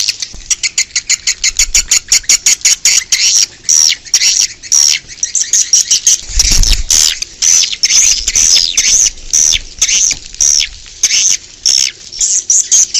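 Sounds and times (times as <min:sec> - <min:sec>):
swiftlets chirping: 0:00.0 - 0:12.9
low rumble: 0:06.2 - 0:07.3.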